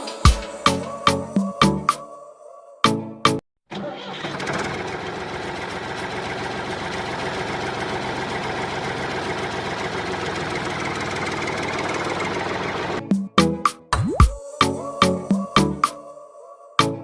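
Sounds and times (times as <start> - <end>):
small engine idling: 3.9 - 13.0.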